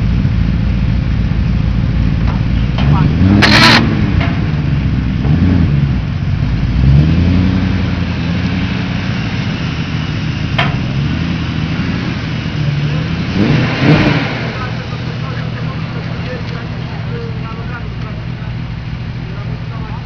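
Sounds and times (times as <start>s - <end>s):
car engine idling and revving: 0.0s - 20.0s
sharp crack: 2.2s - 6.2s, 7.9s - 18.4s.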